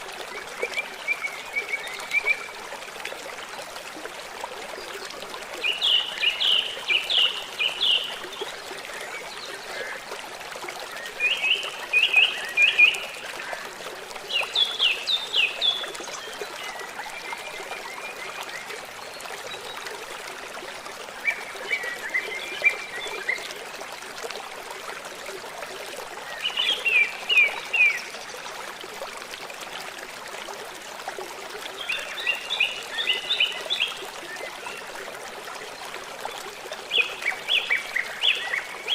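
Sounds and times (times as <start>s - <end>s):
running water: 0.0s - 38.9s
songbird singing: 5.6s - 9.9s.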